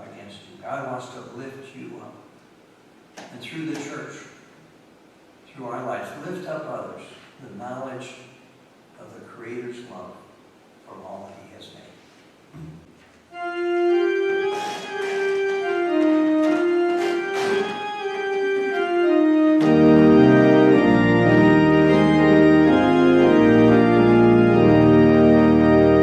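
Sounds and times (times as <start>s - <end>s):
organ playing slow melody: 13.3s - 26.0s.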